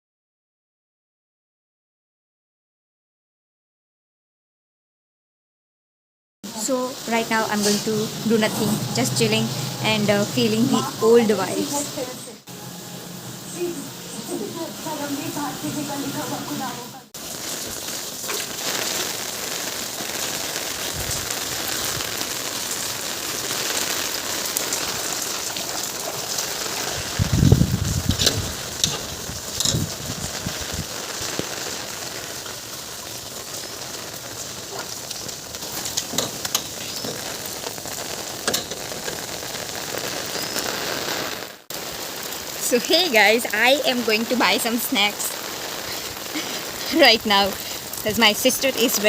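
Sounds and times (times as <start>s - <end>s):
rain falling and splashing: 6.4s - 49.0s
low rumble: 7.1s - 12.4s.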